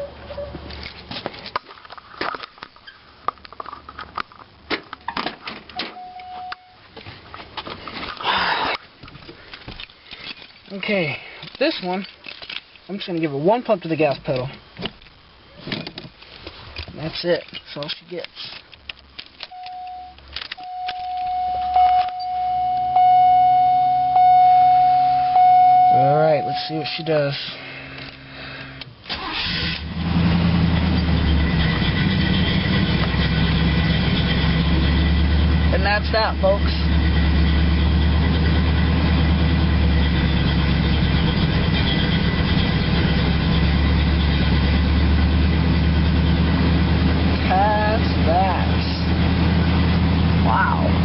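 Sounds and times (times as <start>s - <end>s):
car warning tone: 0.0s - 0.6s, 5.8s - 6.8s, 19.5s - 27.6s
low hum: 19.4s - 28.9s
car engine idling: 20.6s - 51.0s.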